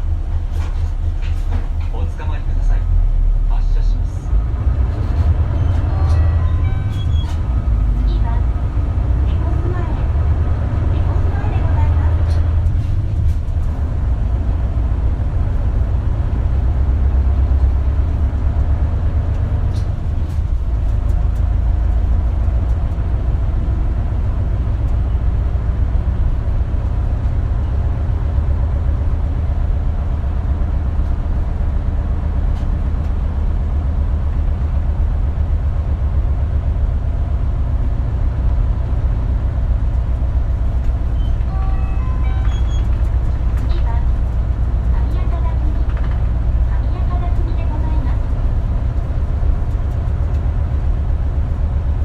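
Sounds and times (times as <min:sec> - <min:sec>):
bus diesel engine drone: 0:00.0 - 0:52.0.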